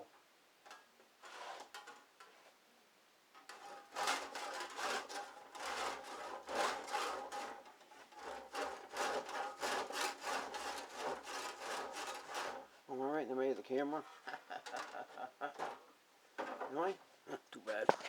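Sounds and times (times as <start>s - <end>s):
hand saw cutting: 3.5s - 12.7s.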